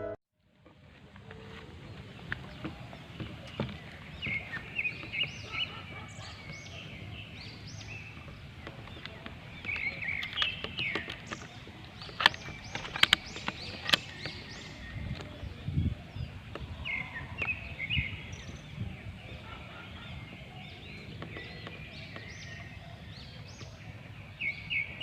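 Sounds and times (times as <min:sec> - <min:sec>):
outdoor background noise: 0:00.0 - 0:25.0
small birds chirping: 0:00.9 - 0:25.0
sharp clicks: 0:08.6 - 0:15.3.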